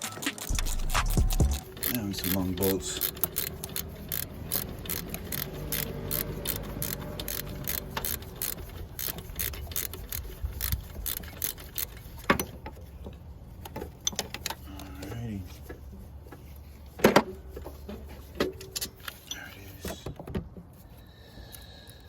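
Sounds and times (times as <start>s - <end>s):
ratchet wrench clicking: 0.5s - 12.5s.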